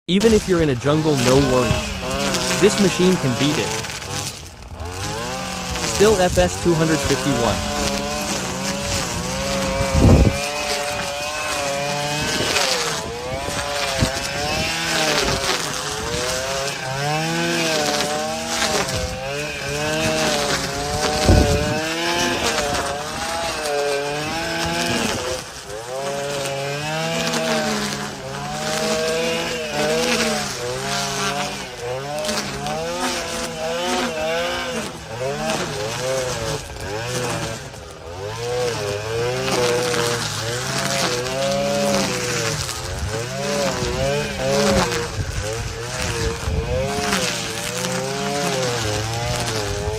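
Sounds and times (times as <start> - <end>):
brush cutter engine running: 0.1 - 49.9.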